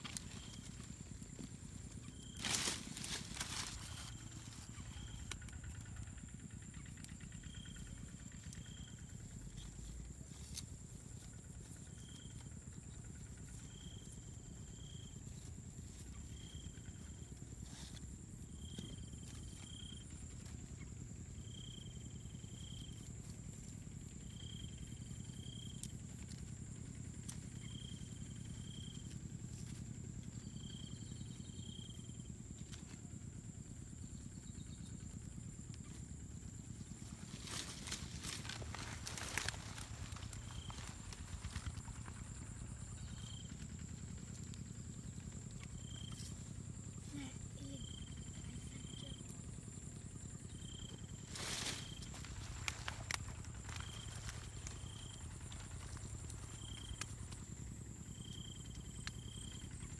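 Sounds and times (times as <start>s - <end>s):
high insect-like drone: 36.8s - 43.7s, 44.4s - 59.8s.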